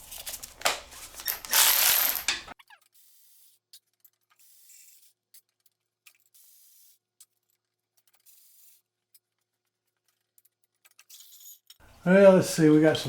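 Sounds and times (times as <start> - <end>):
ratchet wrench clicking: 1.2 - 2.5.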